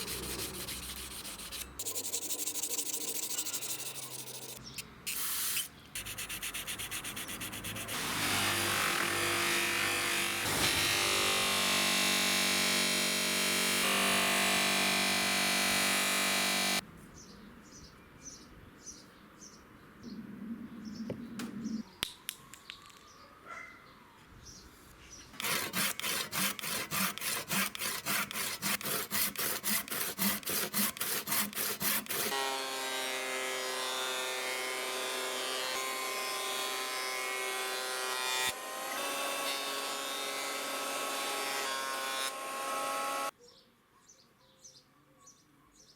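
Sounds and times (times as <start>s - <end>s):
rhythmic hand tool strokes: 0.0s - 16.8s, 25.4s - 43.3s
power tool running loudly: 7.9s - 16.8s.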